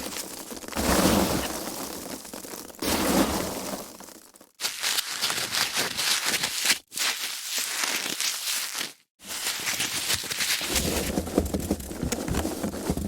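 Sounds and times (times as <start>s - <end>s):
foam packaging crackling: 4.2s - 13.0s.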